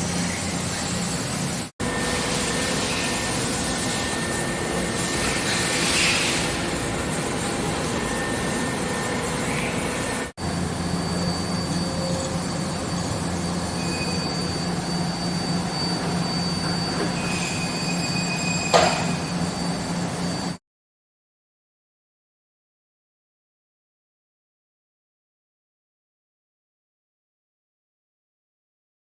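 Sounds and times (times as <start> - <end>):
machine tool humming and whining: 0.0 - 20.6
short sharp squeal: 11.1 - 20.6.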